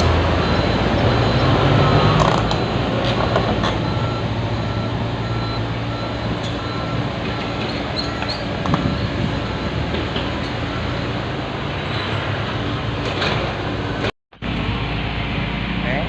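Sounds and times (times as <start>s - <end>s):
reversing alarm beeping: 0.0s - 12.2s
construction vehicle engine running: 0.0s - 16.0s.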